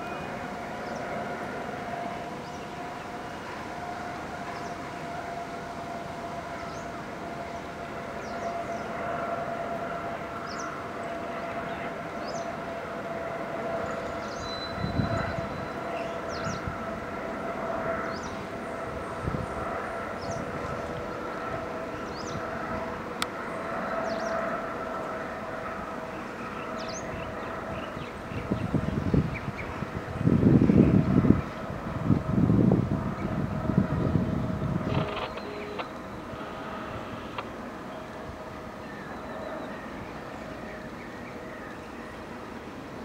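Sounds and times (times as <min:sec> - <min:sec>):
distant train rolling past: 0:00.0 - 0:43.0
steady whining tone: 0:00.0 - 0:43.0
birds chirping: 0:33.2 - 0:42.4.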